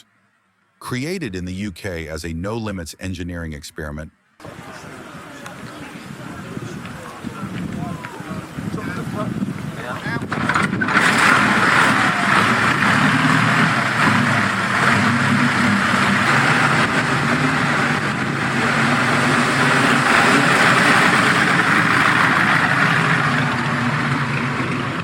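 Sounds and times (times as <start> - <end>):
aircraft engine idling: 9.7 - 25.0.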